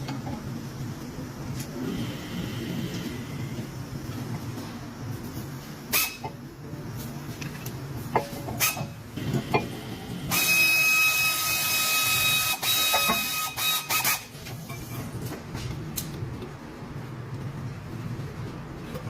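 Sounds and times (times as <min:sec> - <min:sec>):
small motor whirring with hiss: 0:10.3 - 0:14.3.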